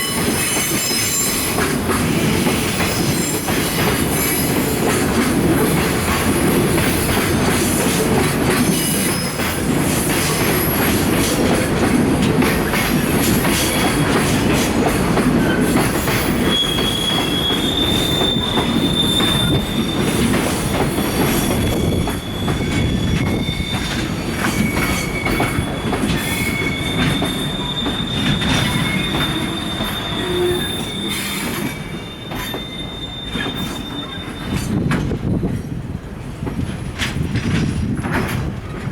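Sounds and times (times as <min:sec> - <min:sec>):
freight train wheels clicking: 0:00.0 - 0:38.9
high-pitched wheel squeal: 0:15.4 - 0:34.7.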